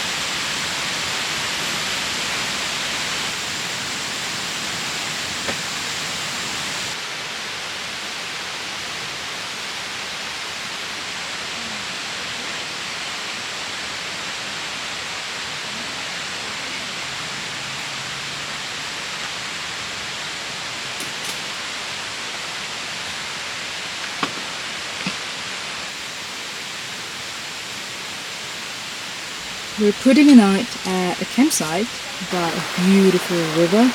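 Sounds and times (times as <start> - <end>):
river water rushing: 13.3 - 33.9.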